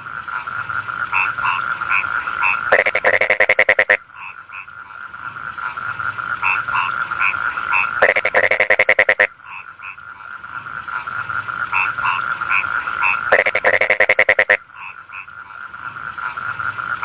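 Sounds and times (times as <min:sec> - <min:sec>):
chorus of frogs calling: 0:00.0 - 0:17.0
loud rattling frog croak: 0:00.0 - 0:17.0
short frog croaks: 0:00.7 - 0:05.0, 0:05.6 - 0:10.1, 0:11.4 - 0:17.0.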